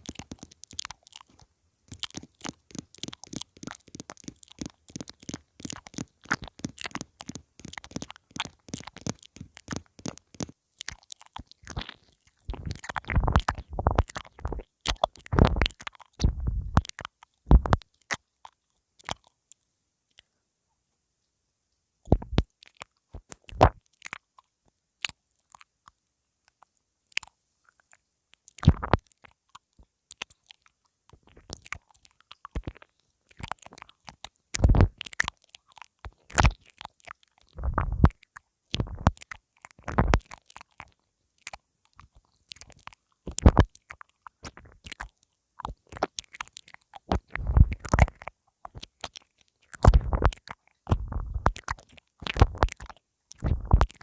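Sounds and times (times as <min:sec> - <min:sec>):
lip and teeth clicks: 0:00.0 - 0:20.3, 0:22.0 - 0:54.0
muffled thuds against microphone: 0:17.5 - 0:17.8.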